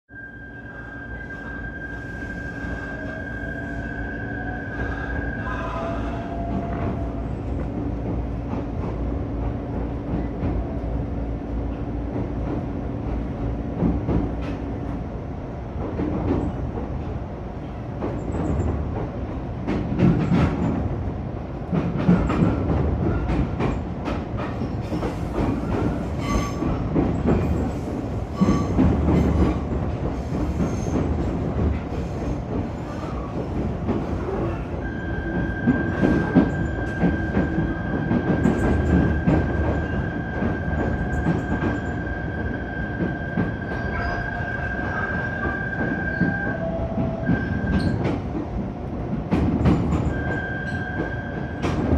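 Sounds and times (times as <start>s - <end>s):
train humming: 0.1s - 51.9s
train wheels clacking over rail joints: 18.0s - 20.9s, 21.7s - 42.1s.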